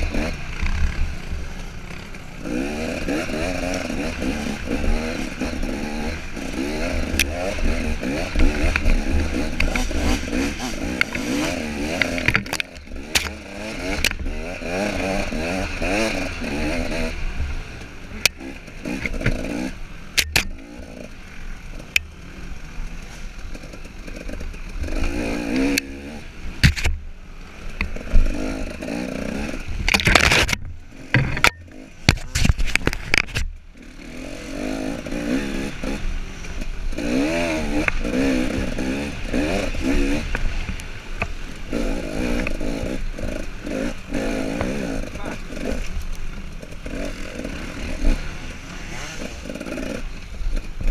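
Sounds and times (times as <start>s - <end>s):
dirt bike engine revving: 0.0s - 50.9s
bike knocking and clattering: 29.9s - 33.5s.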